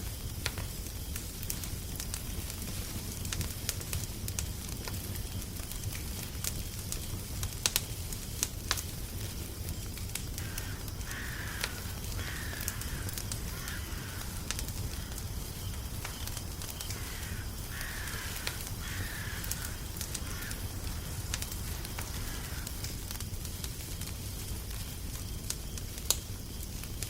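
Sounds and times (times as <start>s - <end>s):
fire crackling and popping: 0.0s - 27.0s
crow cawing: 10.4s - 15.2s, 16.9s - 21.0s, 22.0s - 22.8s.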